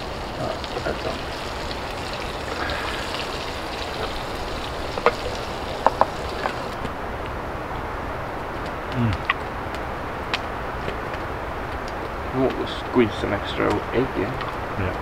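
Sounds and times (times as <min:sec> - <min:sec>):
food sizzling in a pan: 0:00.0 - 0:06.8
sharp crackles: 0:00.0 - 0:15.0.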